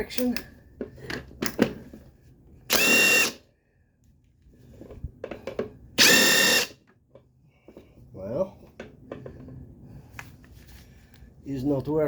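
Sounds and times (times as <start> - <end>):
impact wrench bursts: 2.7 - 3.4, 6.0 - 6.8.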